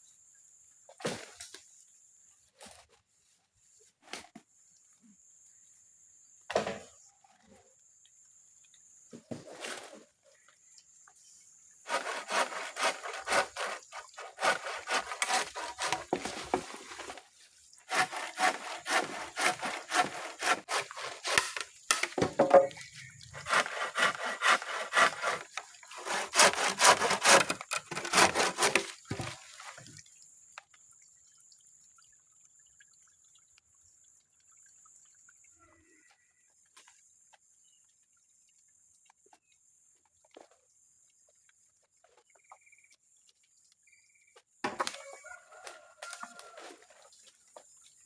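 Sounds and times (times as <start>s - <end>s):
hand saw cutting wood: 11.9s - 17.2s, 17.8s - 29.6s.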